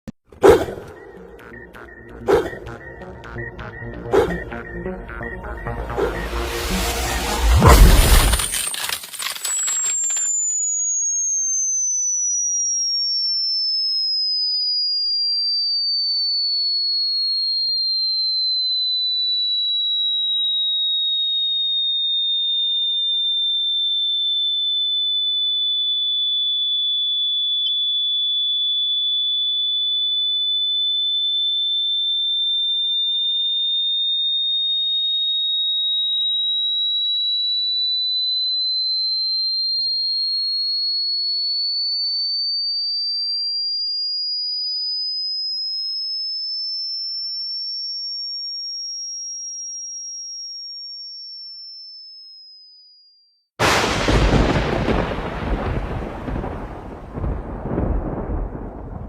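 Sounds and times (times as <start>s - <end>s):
high electronic tone gliding: 0.7s - 11.3s.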